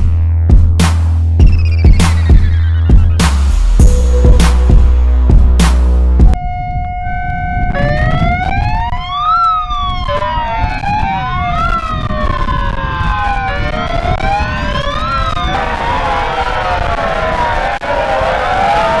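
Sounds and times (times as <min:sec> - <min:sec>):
rough low rumble: 0:00.0 - 0:08.0
megaphone sirens wailing: 0:06.4 - 0:19.0.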